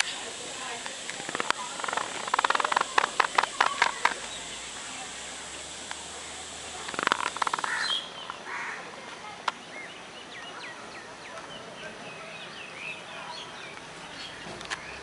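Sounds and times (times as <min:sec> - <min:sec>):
steady hiss: 0:00.0 - 0:15.0
harsh bird chattering: 0:01.2 - 0:04.8, 0:06.2 - 0:08.8.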